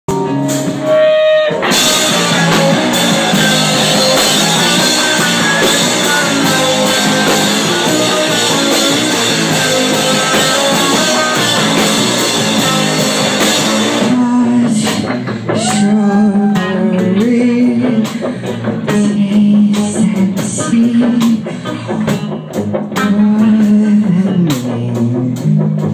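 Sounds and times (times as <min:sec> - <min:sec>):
electric guitar notes: 0:00.1 - 0:24.0
rock band playing live: 0:00.1 - 0:25.9
drum hits: 0:01.6 - 0:14.2.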